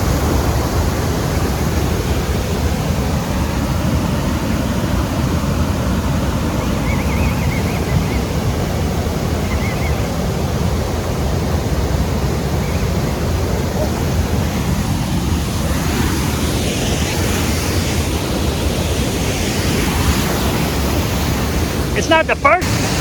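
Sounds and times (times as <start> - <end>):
waterfall rushing: 0.0 - 23.0
faint high chirping: 6.6 - 8.5, 9.3 - 10.2, 12.5 - 13.9.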